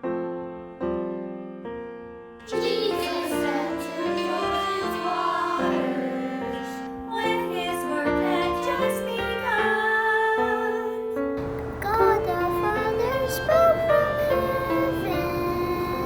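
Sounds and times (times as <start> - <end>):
piano chords: 0.0 - 16.0
person singing: 2.4 - 16.0.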